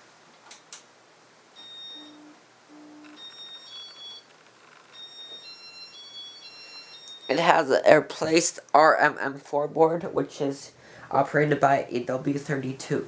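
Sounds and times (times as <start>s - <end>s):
electronic beep tune: 1.6s - 4.3s, 5.0s - 7.5s.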